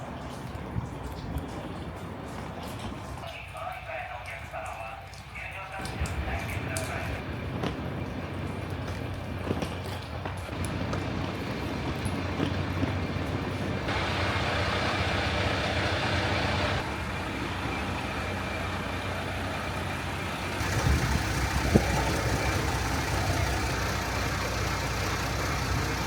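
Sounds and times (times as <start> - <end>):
train rumbling: 5.5 - 26.0.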